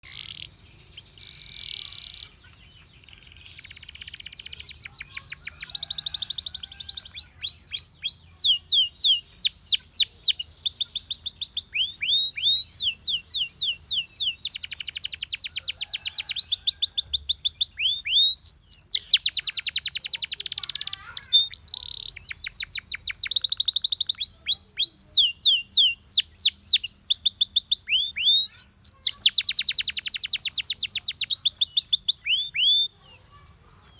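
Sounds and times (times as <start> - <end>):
canary singing chirps and trills: 0.0 - 33.9.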